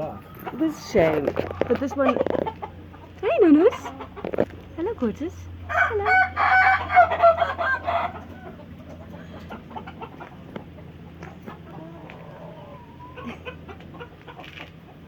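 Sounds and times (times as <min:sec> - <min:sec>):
chicken clucking: 0:00.0 - 0:04.9, 0:05.7 - 0:15.0
rooster stuttering crow: 0:05.7 - 0:08.6.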